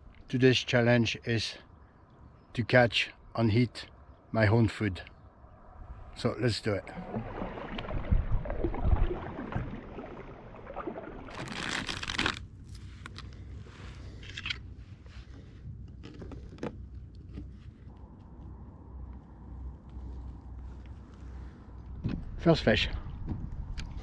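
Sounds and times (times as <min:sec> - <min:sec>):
rustling and scraping handling: 0:11.3 - 0:18.5.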